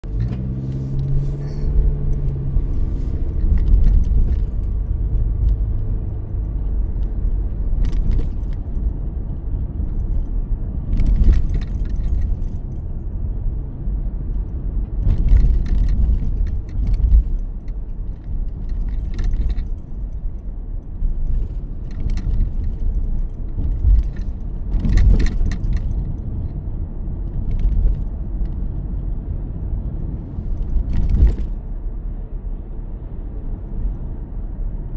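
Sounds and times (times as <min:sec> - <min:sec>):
car engine and road rumble: 0:00.0 - 0:34.9
keys jangling: 0:00.2 - 0:09.0, 0:09.8 - 0:12.9, 0:15.2 - 0:26.6.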